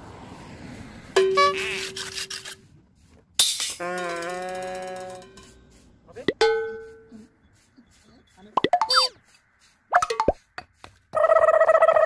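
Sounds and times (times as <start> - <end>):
held electronic tone: 8.6 - 9.2.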